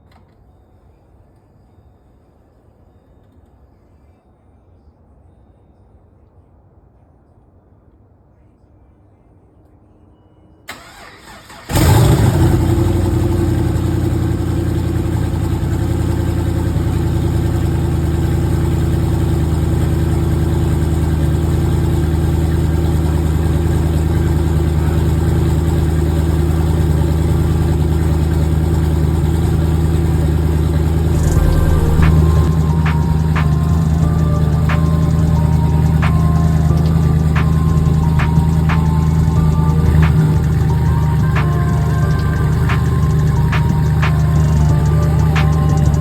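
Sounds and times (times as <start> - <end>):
car engine starting and idling: 10.7 - 46.0.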